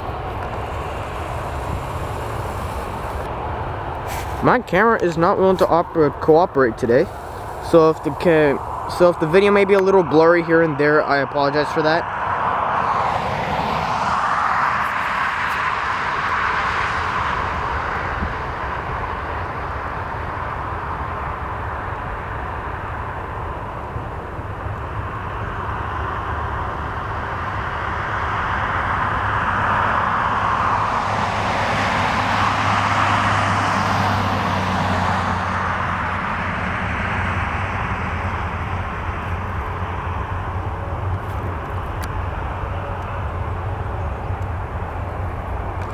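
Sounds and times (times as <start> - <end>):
jet engine roar: 0.0 - 45.9
low hum: 0.0 - 45.9.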